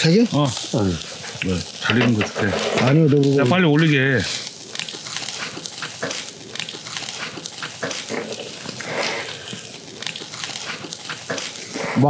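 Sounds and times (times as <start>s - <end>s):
faint grill sizzle: 0.0s - 12.0s
wet chewing and lip-smacking: 4.6s - 11.8s.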